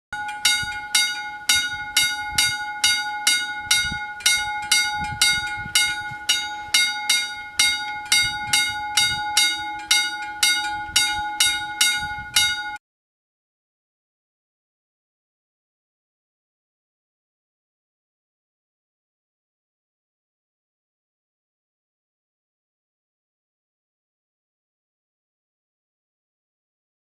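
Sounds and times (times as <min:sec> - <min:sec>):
level crossing warning bell: 0:00.1 - 0:12.8.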